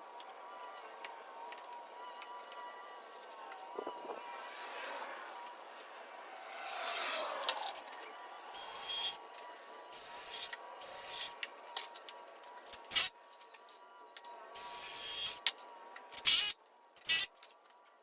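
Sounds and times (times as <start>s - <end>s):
power tool hissing air bursts: 8.6s - 9.2s, 10.0s - 11.4s.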